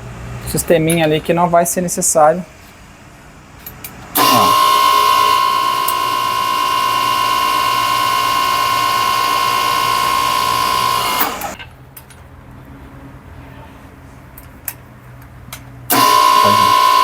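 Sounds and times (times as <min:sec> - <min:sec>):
hose crimping machine whine: 0:03.6 - 0:11.7, 0:15.9 - 0:17.0.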